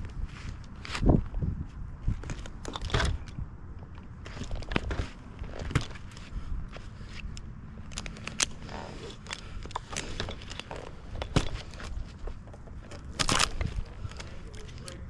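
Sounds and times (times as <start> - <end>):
rustling scrape: 0.1 - 3.2, 7.9 - 14.9
clicks knocks and scrapes: 4.0 - 14.8.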